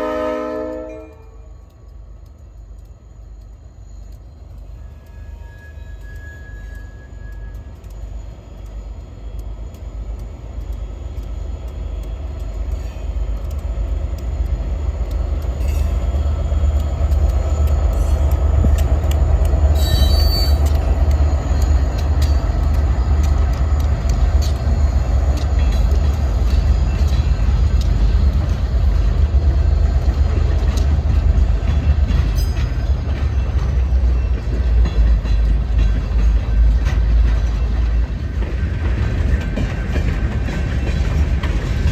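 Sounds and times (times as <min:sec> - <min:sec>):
freight train rumble: 0:00.0 - 0:41.9
wheels clicking over rail joints: 0:00.2 - 0:41.9
high-pitched wheel squeal: 0:04.8 - 0:07.7, 0:19.8 - 0:20.7.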